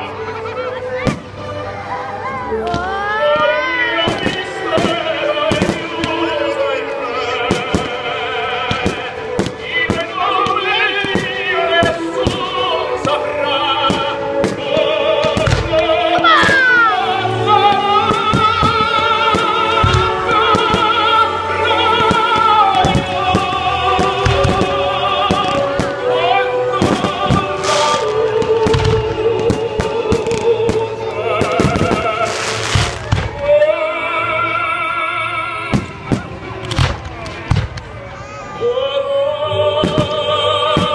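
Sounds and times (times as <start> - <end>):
operatic singing with music: 0.0 - 40.9
firework bangs: 4.1 - 6.4, 7.2 - 16.8, 17.6 - 21.2, 21.8 - 33.5, 35.7 - 38.0, 39.8 - 40.9.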